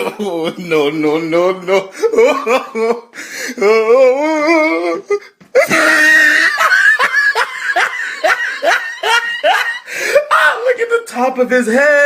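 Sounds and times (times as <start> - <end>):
loud laughter: 5.6 - 10.6.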